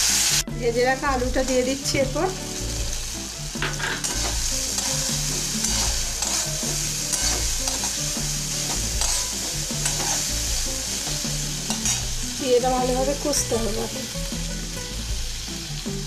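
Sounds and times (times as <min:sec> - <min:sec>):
potatoes sizzling in oil: 0:00.0 - 0:16.0
spatula scraping a pan: 0:03.6 - 0:12.4.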